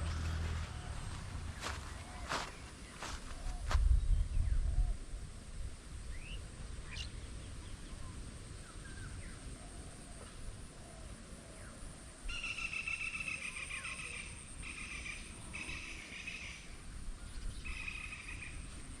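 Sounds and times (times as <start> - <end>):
wind rumbling on microphone: 0.0 - 9.4.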